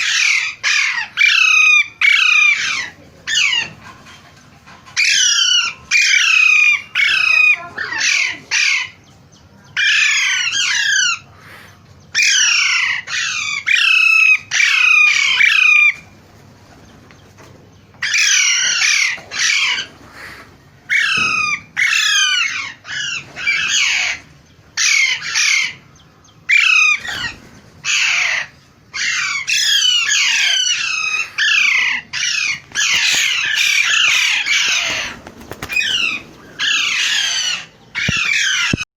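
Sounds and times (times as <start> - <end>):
parrots squawking: 0.0 - 4.2, 4.8 - 9.1, 9.7 - 16.2, 18.0 - 38.9.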